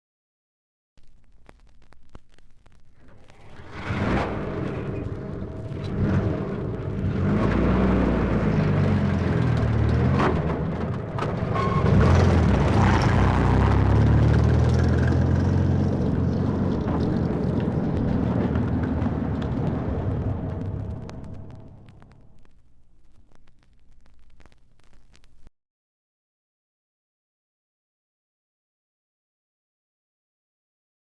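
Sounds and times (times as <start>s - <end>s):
heavy vehicle engine running: 3.4s - 22.2s.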